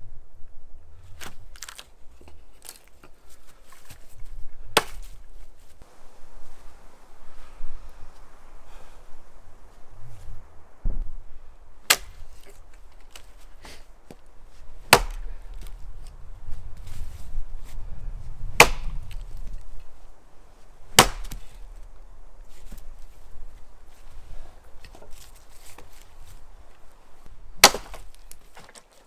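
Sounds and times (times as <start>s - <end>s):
axe chopping wood: 4.8s - 5.2s, 11.8s - 16.1s, 18.6s - 19.6s, 20.9s - 22.0s, 27.2s - 28.8s.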